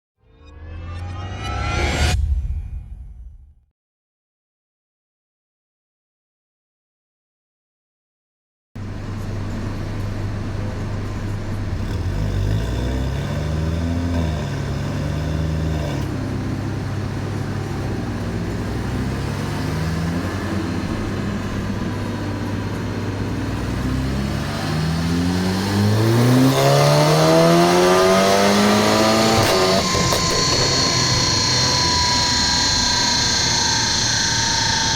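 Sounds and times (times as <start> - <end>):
car engine revving: 8.8 - 34.9.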